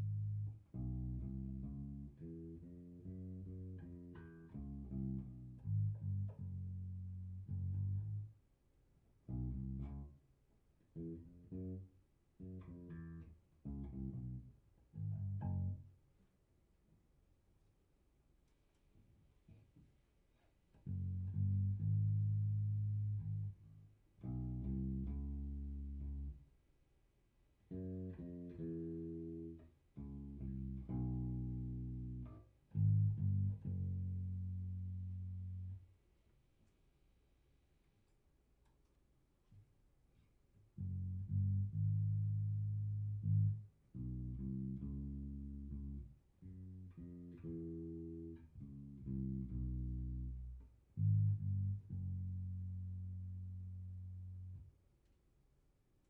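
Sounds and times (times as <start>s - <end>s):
electric bass guitar plucked notes: 0.0s - 8.4s, 9.3s - 10.2s, 10.9s - 15.9s, 20.8s - 26.5s, 27.7s - 35.8s, 40.8s - 54.7s.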